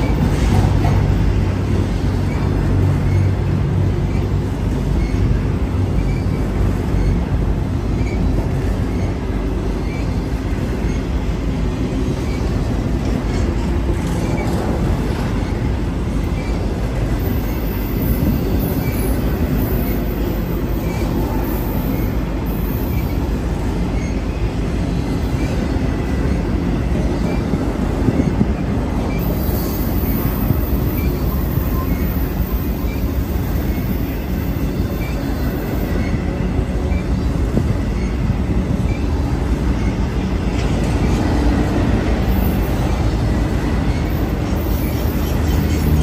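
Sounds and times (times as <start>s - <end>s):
freight train passing: 0.0s - 46.0s
steel wheels rumbling on rail: 0.0s - 46.0s.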